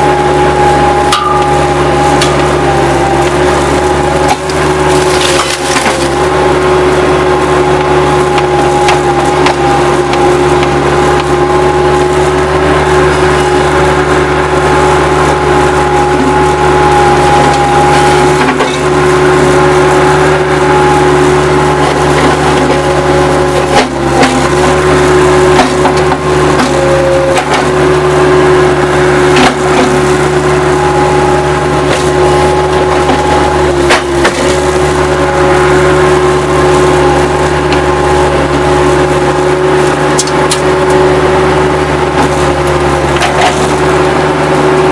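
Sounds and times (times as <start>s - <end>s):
diesel engine running: 0.0s - 44.9s
wood cracking and splintering: 3.8s - 6.3s, 25.5s - 27.8s, 31.8s - 35.1s.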